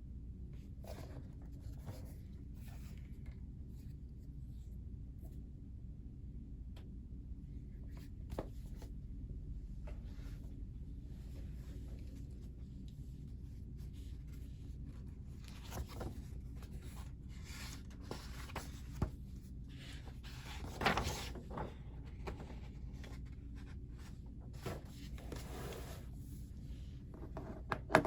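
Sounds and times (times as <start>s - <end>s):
steady low hum: 0.0s - 27.4s
paper rustling: 13.8s - 23.7s.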